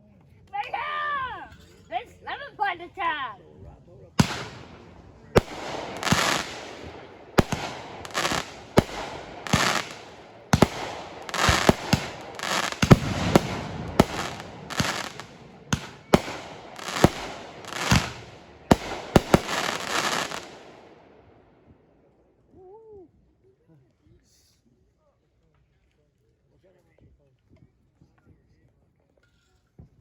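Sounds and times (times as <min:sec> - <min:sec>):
fireworks bangs with rumbling echo: 0:04.2 - 0:21.3.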